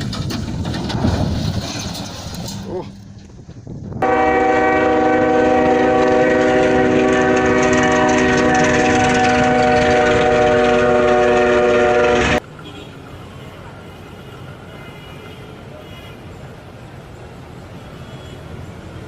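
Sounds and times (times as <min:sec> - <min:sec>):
train horn blast: 0:04.0 - 0:16.3.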